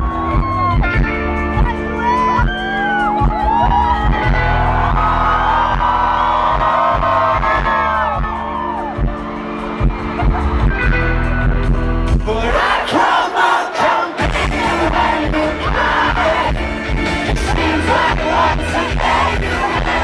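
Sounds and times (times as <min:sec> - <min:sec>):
crowd cheering: 0:00.0 - 0:01.0, 0:02.0 - 0:11.7, 0:12.5 - 0:20.0
live rock band playing: 0:00.0 - 0:12.6, 0:14.2 - 0:20.0
drum hits: 0:14.2 - 0:20.0.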